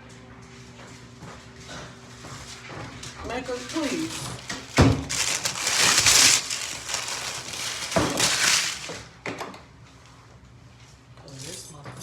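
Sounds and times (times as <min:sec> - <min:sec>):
rustling crumpling handling noise: 0:02.4 - 0:09.2.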